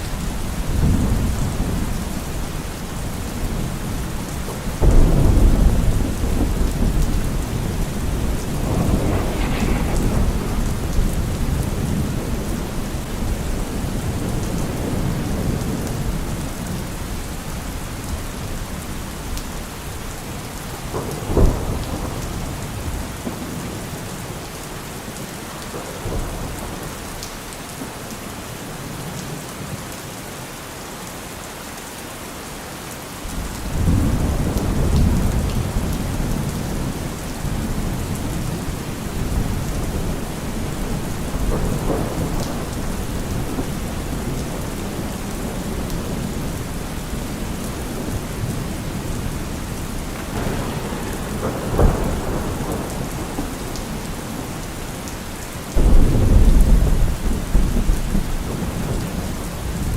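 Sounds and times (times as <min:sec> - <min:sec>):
thunder rumbling: 0:00.0 - 0:24.5, 0:33.3 - 0:59.9
rain falling: 0:00.0 - 0:59.9
sharp thunder clap: 0:04.8 - 0:16.2, 0:50.0 - 0:55.0, 0:55.8 - 0:59.9.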